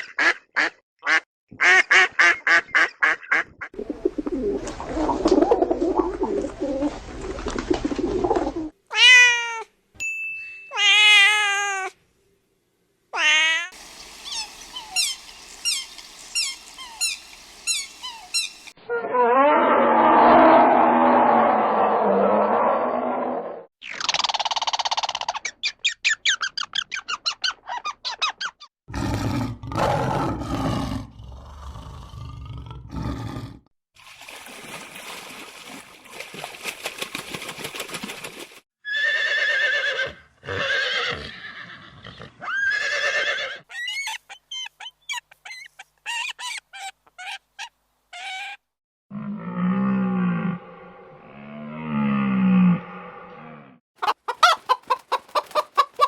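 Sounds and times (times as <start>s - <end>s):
animal calls: 13.7s - 20.6s.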